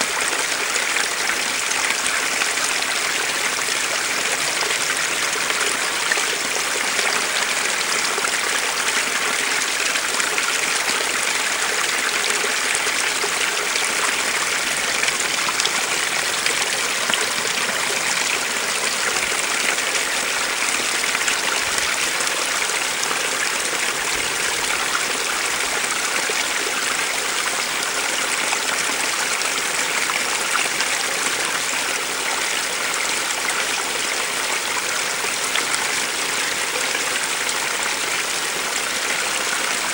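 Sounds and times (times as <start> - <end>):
small stream flowing: 0.0 - 39.9.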